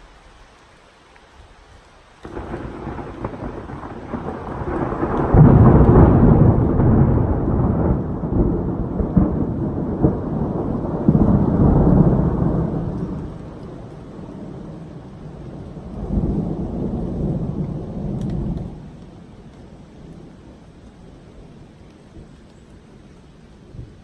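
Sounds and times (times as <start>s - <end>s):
light rain: 0.0s - 24.0s
rolling thunder: 2.2s - 20.3s.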